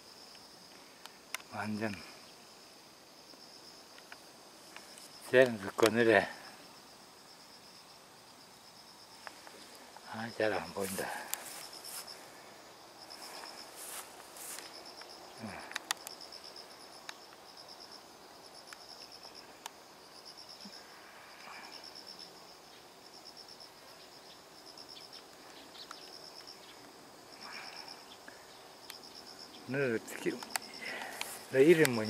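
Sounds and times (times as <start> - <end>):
insects chirping: 0.0 - 32.0
faint clicks: 14.6 - 16.2, 30.3 - 32.0.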